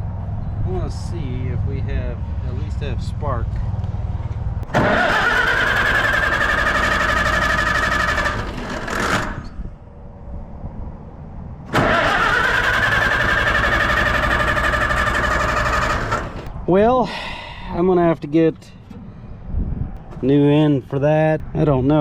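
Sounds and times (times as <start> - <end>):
tractor engine cranking on starter: 4.6 - 9.6, 11.7 - 16.5.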